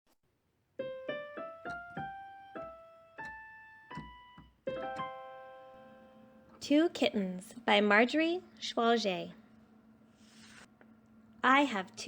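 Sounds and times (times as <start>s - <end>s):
piano tune: 0.8s - 6.6s.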